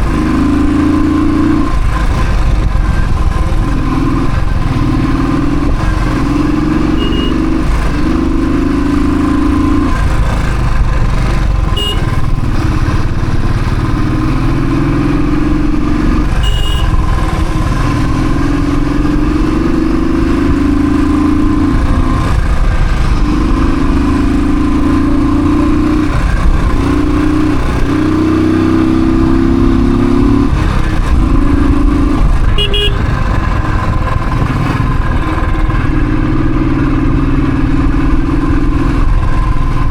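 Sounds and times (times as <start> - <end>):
motorcycle engine revving: 0.0 - 39.9
short high beeps: 6.9 - 7.6.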